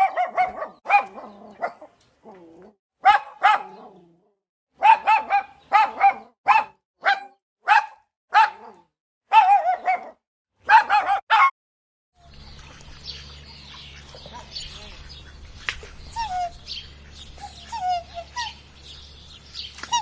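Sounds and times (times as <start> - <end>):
dog barking: 0.0 - 1.9, 3.0 - 4.0, 4.8 - 11.5.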